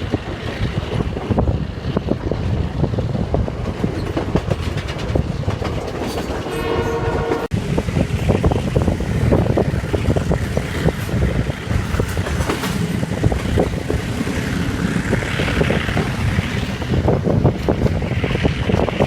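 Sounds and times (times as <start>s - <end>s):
train rumbling: 0.0s - 19.0s
wheels clacking over rail joints: 0.0s - 19.0s
wind rushing hiss: 7.5s - 19.0s.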